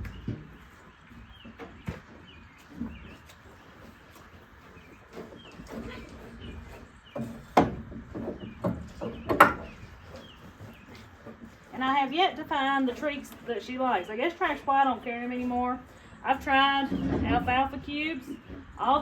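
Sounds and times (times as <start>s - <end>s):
sharp knocks: 7.6s - 9.8s.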